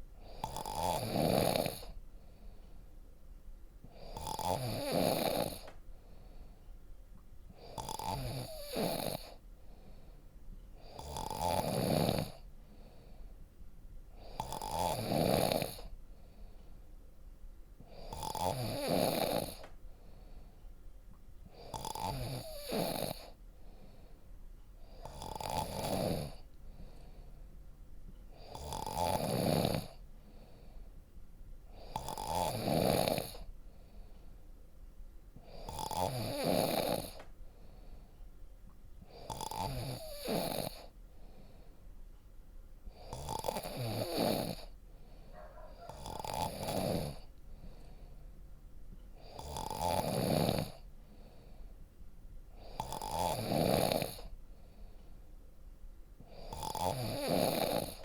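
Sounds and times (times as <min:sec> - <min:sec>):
quiet breathing: 0:00.0 - 0:58.0
person snoring deeply: 0:00.2 - 0:02.0, 0:04.0 - 0:05.7, 0:07.6 - 0:09.4, 0:10.9 - 0:12.4, 0:14.2 - 0:15.9, 0:17.9 - 0:19.6, 0:21.6 - 0:23.3, 0:25.0 - 0:26.4, 0:28.4 - 0:30.0, 0:31.8 - 0:33.5, 0:35.5 - 0:37.2, 0:39.2 - 0:40.9, 0:43.0 - 0:44.7, 0:45.4 - 0:47.3, 0:49.2 - 0:50.8, 0:52.6 - 0:54.3, 0:56.3 - 0:58.0.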